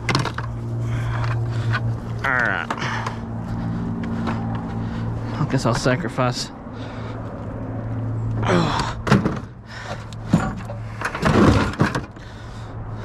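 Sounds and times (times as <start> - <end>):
objects knocking and thudding: 0.0 - 0.6, 8.8 - 12.2
steady low hum: 0.0 - 11.3.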